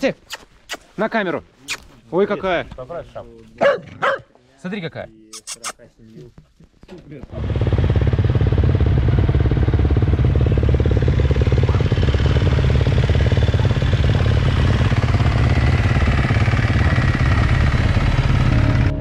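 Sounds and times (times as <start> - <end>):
dirt bike engine running: 7.2 - 19.0.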